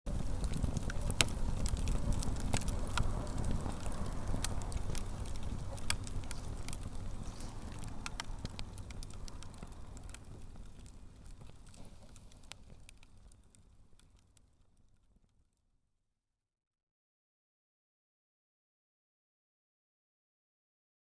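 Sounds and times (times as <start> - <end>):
low fire rumble: 0.1 - 15.3
bonfire pops and crackles: 0.1 - 15.4.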